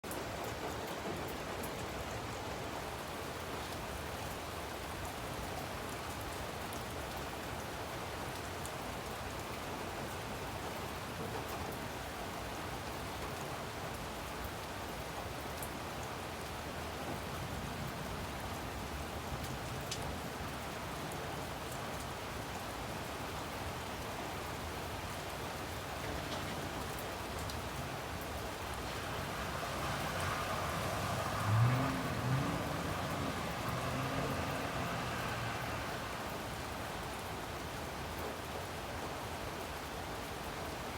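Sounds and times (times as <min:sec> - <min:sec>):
heavy rain: 0:00.0 - 0:40.9
raindrop ticks: 0:18.9 - 0:22.2, 0:25.2 - 0:38.4.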